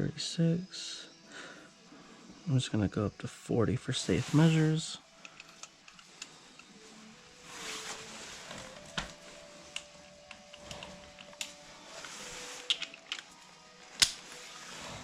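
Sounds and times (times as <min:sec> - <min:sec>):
faint hiss: 0:00.0 - 0:09.8
torque wrench clicks: 0:05.2 - 0:06.7.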